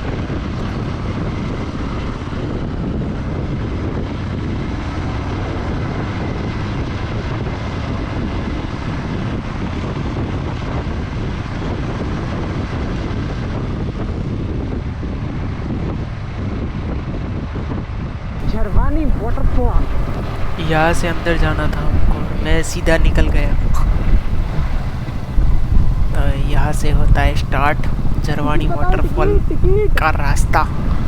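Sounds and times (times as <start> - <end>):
wind buffeting microphone: 0.0 - 31.0
motorcycle engine: 18.4 - 28.3
road rumble: 18.4 - 31.0.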